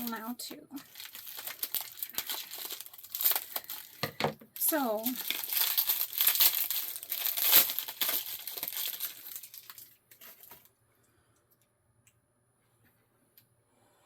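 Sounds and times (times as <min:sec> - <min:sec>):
packing wrap crinkling: 0:00.0 - 0:10.7.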